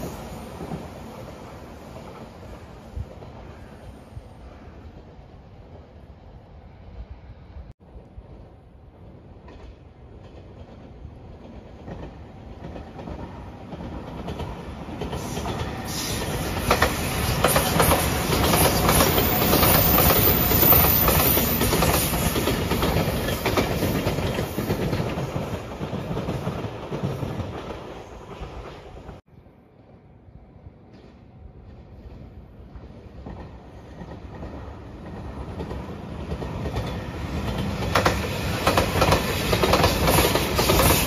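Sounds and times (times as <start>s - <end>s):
wheels clacking over rail joints: 33.2s - 41.0s.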